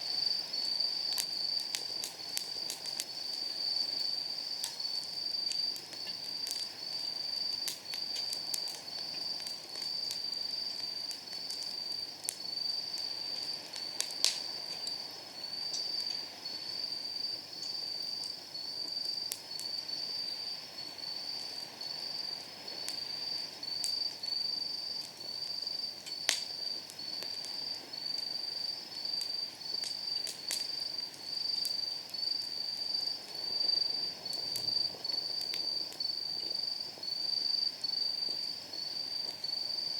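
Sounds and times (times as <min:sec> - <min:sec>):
night insects chirping: 0:00.0 - 0:39.9
wood fire crackling: 0:00.0 - 0:39.9
burning wood snapping: 0:00.2 - 0:16.2, 0:22.7 - 0:28.3, 0:29.0 - 0:37.5.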